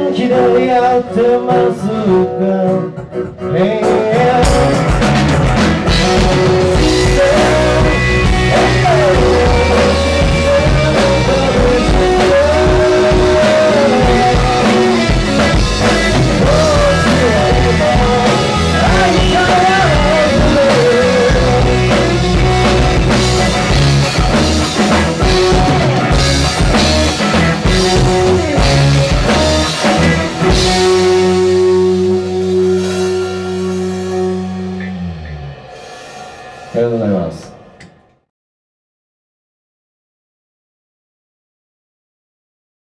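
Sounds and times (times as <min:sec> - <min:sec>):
rock band playing: 0:00.0 - 0:38.1
wavering lead melody: 0:04.1 - 0:35.9.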